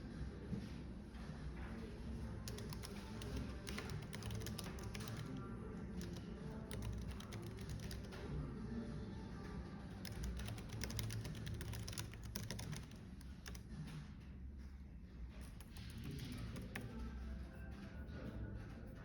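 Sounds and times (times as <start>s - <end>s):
typing on computer keyboard: 1.8s - 8.4s, 9.9s - 14.2s, 15.3s - 17.9s.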